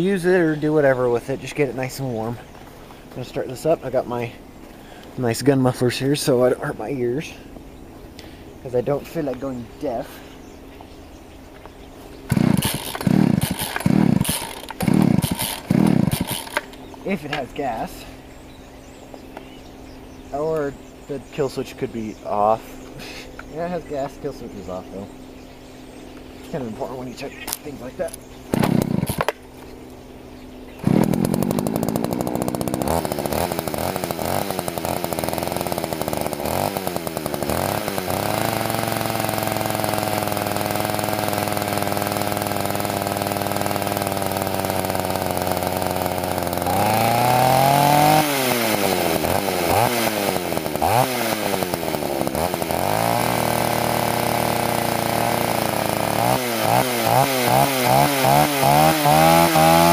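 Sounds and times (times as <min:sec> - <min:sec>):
chainsaw engine revving: 0:12.2 - 0:18.2, 0:26.4 - 0:59.9.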